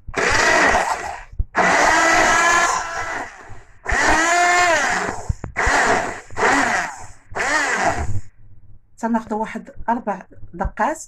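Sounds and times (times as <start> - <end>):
electric blender pulsing: 0.0 - 8.2.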